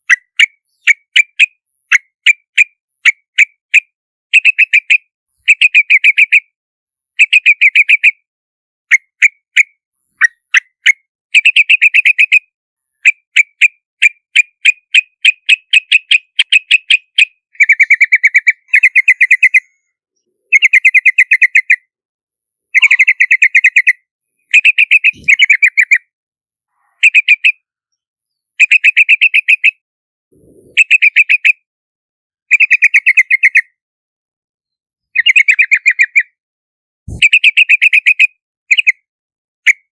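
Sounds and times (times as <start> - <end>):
bulbul chattering calls: 15.5 - 19.7, 22.8 - 24.0, 24.6 - 26.0, 37.1 - 38.2.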